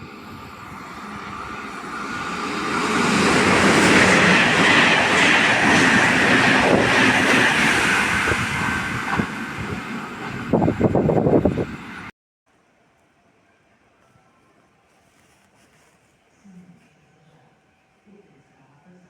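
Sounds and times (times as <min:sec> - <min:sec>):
train passing at speed: 0:00.0 - 0:12.1.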